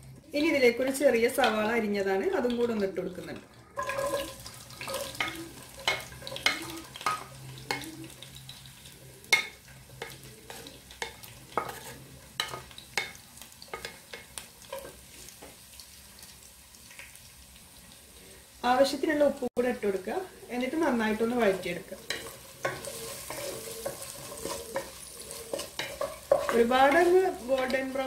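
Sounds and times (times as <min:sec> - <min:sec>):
onion frying hiss: 0:03.4 - 0:28.0
spatula tapping and scraping pan: 0:03.8 - 0:08.2, 0:09.2 - 0:15.6, 0:21.5 - 0:28.0.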